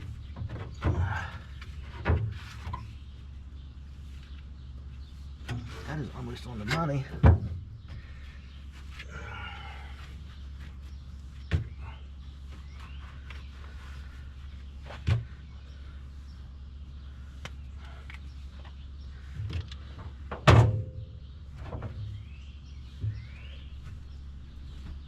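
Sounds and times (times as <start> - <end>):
steady low hum: 0.0 - 25.0
metallic knocks and clunks: 6.6 - 8.0, 19.4 - 22.2.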